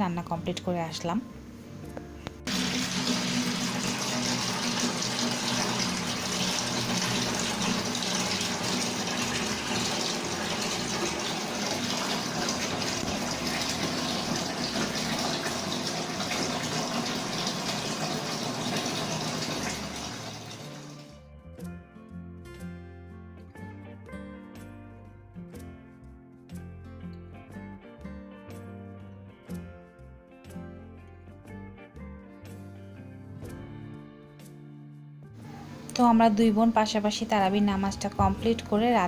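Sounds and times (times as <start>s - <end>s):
water running from a tap: 2.5s - 21.2s.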